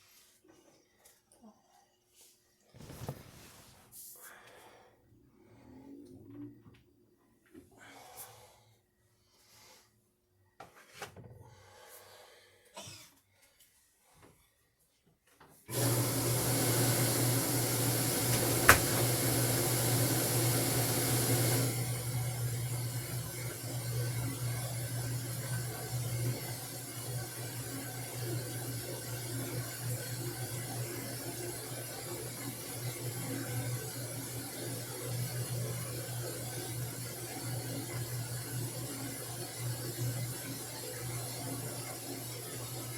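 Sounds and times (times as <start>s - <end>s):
washing machine humming: 15.7s - 42.9s.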